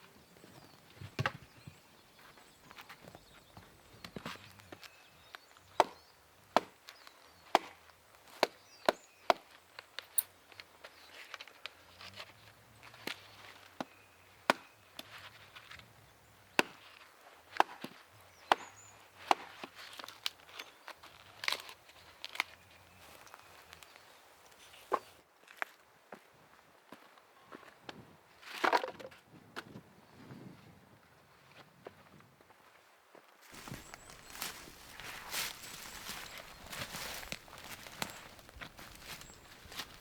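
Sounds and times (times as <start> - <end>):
wood being chopped: 5.8 - 6.8, 7.5 - 9.5, 14.5 - 14.8, 16.5 - 16.9, 17.5 - 20.2.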